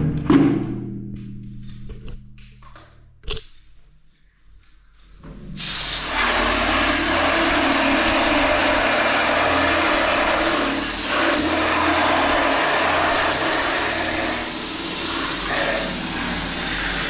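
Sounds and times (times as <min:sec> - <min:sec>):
water spraying inside metal tank: 0:05.6 - 0:17.0.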